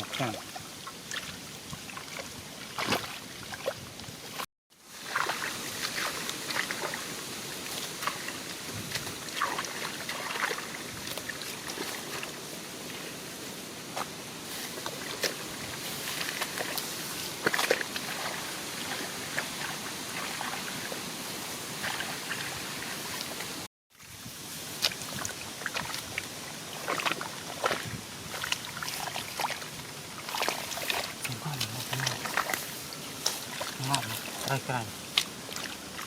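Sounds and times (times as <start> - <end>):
water splashing: 0.0 - 36.0
water trickling: 24.8 - 36.0.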